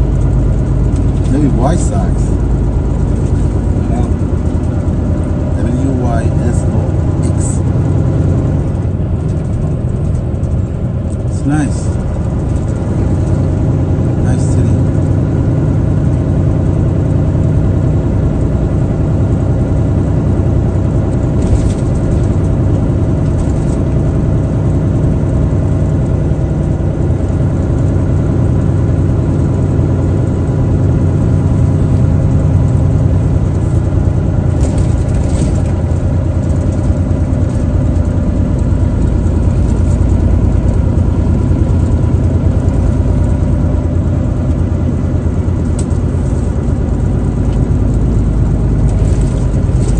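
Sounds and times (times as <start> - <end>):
road noise: 0.0 - 49.9
truck engine running: 0.0 - 49.9
brief rattles: 21.3 - 22.5, 23.2 - 24.0, 33.2 - 43.4, 45.6 - 49.9.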